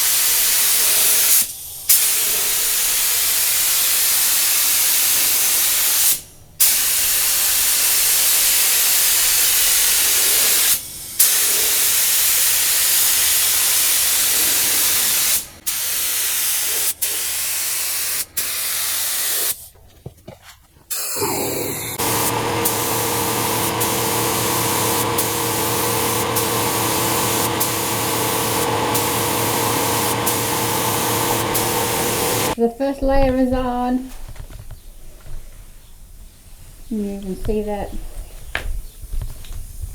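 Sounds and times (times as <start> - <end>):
paint spray gun hissing: 0.0 - 19.6, 20.9 - 32.6
steady machine hum: 21.2 - 32.6.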